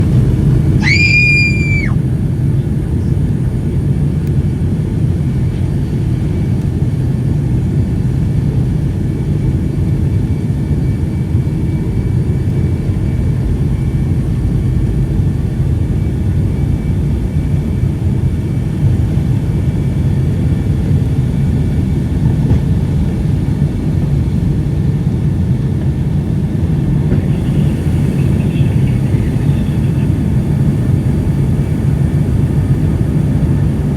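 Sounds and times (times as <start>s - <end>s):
airplane cabin engine rumble: 0.0s - 33.9s
girl screaming: 0.8s - 2.0s.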